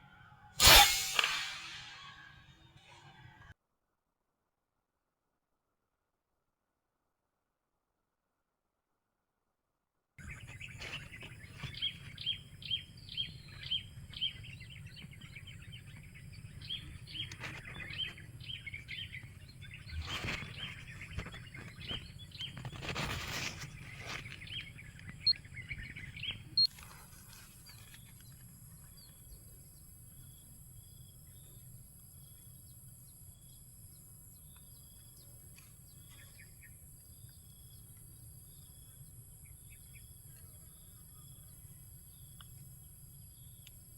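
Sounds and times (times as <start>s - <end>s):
wild birds chirping: 10.2s - 26.7s
brief rustling: 19.9s - 24.8s.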